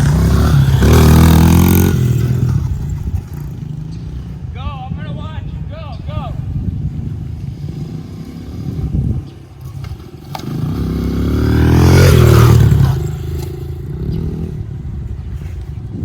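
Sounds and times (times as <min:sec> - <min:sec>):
dirt bike engine passing: 0:00.0 - 0:16.0.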